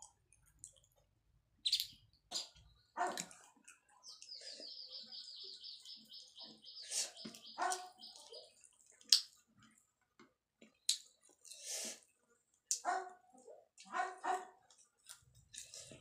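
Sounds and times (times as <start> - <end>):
soft eating sounds: 0.0 - 16.0
bird trilling high chirps: 1.6 - 2.5, 4.0 - 8.6.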